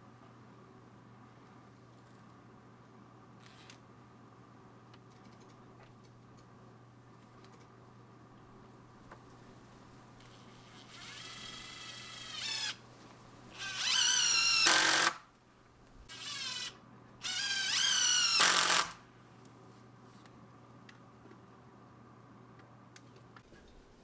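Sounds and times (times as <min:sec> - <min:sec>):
power drill whining: 0:10.5 - 0:12.8, 0:13.5 - 0:15.2, 0:16.1 - 0:19.0.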